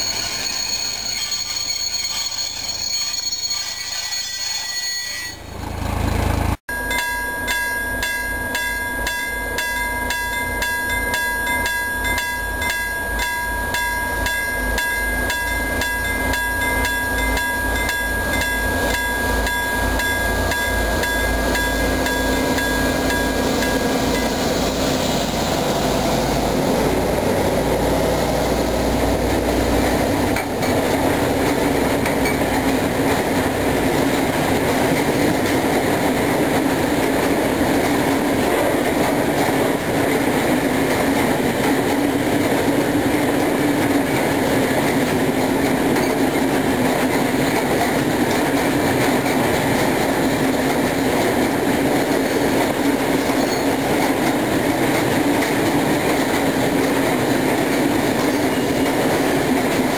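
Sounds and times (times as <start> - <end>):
diesel locomotive engine drone: 0.0 - 59.9
freight wagons clattering on rails: 29.4 - 59.9.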